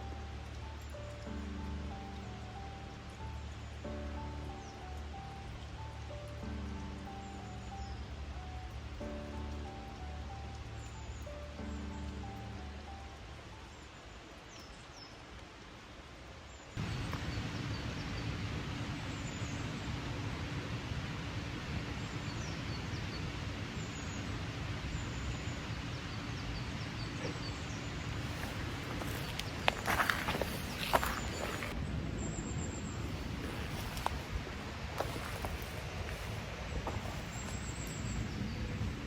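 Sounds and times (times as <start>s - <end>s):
small birds chirping: 0.0s - 15.5s, 22.0s - 39.0s
steady outdoor hiss: 0.0s - 39.0s.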